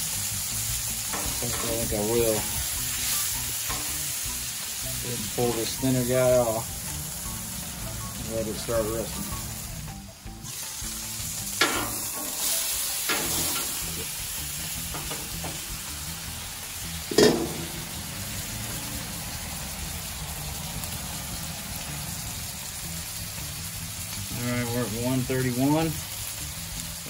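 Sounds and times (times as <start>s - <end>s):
food sizzling on a griddle: 0.0s - 27.0s
metal dome knocking: 17.1s - 17.9s.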